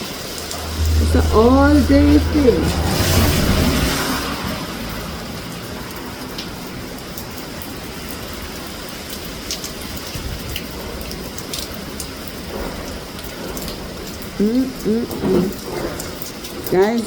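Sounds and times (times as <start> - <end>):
heavy rain hissing: 0.1 - 8.6
raindrops ticking close by: 3.2 - 17.0.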